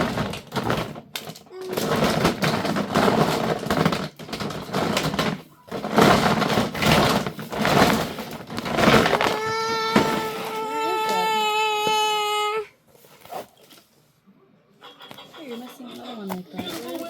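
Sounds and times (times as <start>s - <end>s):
plastic toy track pieces clattering: 0.0s - 11.3s
child crying: 9.2s - 12.8s.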